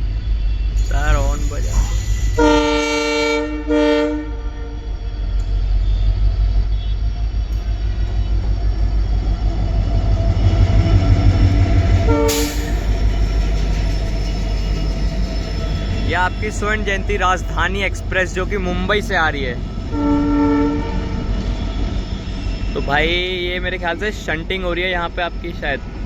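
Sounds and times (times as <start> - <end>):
train rumbling on rails: 0.0 - 26.0
locomotive horn blasts: 0.8 - 5.2, 12.0 - 12.9, 19.9 - 22.8.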